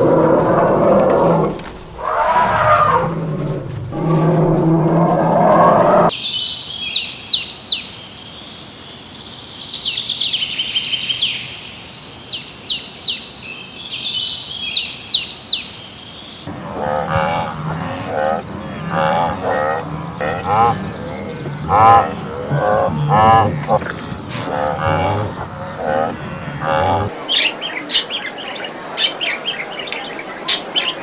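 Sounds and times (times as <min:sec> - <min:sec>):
small birds chirping: 0:06.1 - 0:31.0
low animal call: 0:16.5 - 0:27.2
pulsing animal call: 0:16.5 - 0:27.2.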